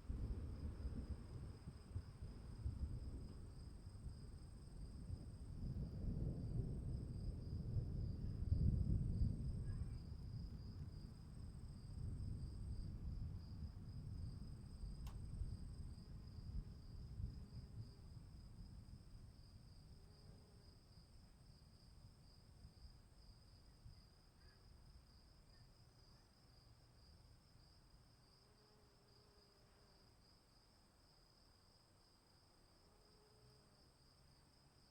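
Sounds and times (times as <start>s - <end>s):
crickets chirping: 0.0s - 34.9s
faint click: 15.0s - 15.3s.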